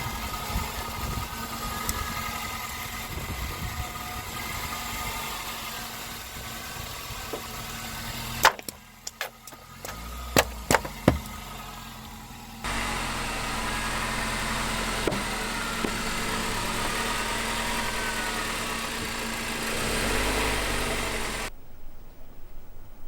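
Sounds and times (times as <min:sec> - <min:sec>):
car engine running: 0:00.0 - 0:21.5
sharp crack: 0:08.2 - 0:11.4.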